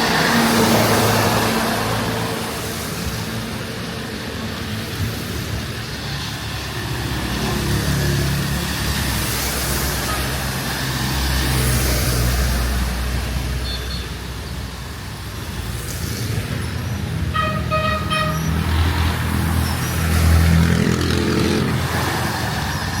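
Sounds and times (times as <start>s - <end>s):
vehicle engines running: 0.0s - 23.0s
vehicle passing: 15.6s - 23.0s.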